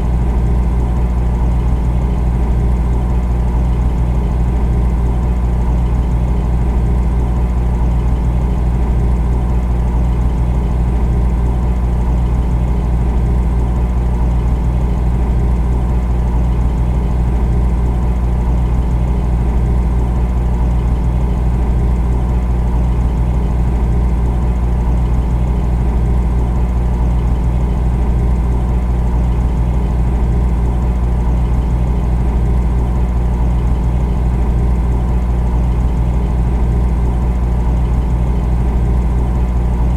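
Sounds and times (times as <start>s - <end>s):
refrigerator humming: 0.0s - 39.9s.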